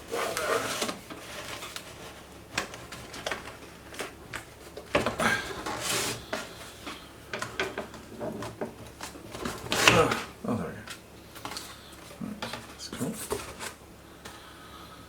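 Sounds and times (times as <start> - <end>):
rubbing scrape: 0.0 - 2.1, 5.7 - 6.2
packaging handled by hand: 0.0 - 13.8.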